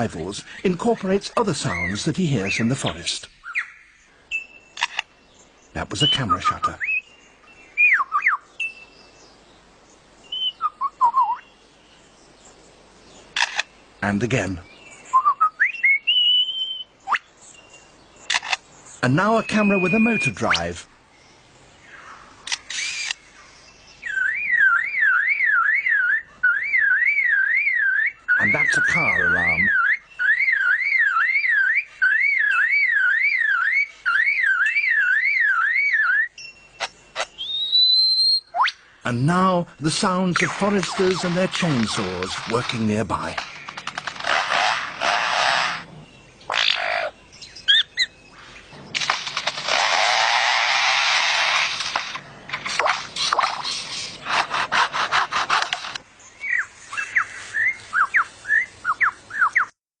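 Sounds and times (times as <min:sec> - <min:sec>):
sliding whistled bird notes: 0:05.9 - 0:07.0, 0:07.7 - 0:09.0, 0:10.3 - 0:11.5, 0:15.0 - 0:18.4, 0:19.0 - 0:20.7, 0:24.0 - 0:38.8, 0:39.8 - 0:43.9
lyrebird mimicking car alarm: 0:24.1 - 0:38.8
lyrebird mimicking chainsaw: 0:40.4 - 0:45.9, 0:49.0 - 0:56.0.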